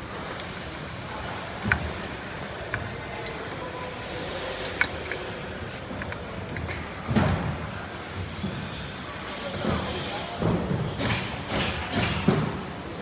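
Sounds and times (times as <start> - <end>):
steady background noise: 0.0 - 13.0
metal clicks and taps: 6.0 - 6.8.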